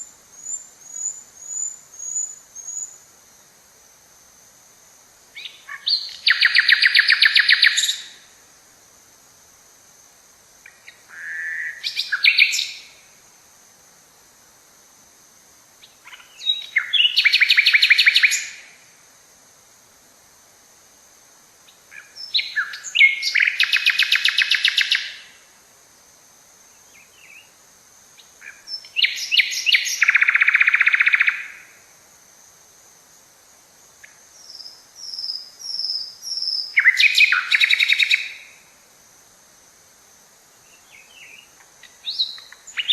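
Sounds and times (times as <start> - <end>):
songbird singing with trill: 0.0 - 3.0, 5.3 - 8.2, 10.6 - 13.0, 15.8 - 18.7, 21.7 - 25.4, 26.7 - 27.6, 28.2 - 31.7, 34.0 - 38.6, 40.6 - 42.9.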